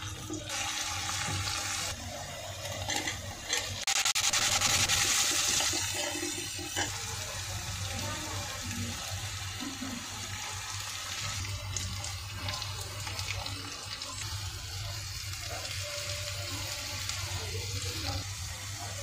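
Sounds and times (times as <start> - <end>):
food sizzling in hot oil: 0.0 - 19.0
spoon scraping a pan: 5.3 - 7.1.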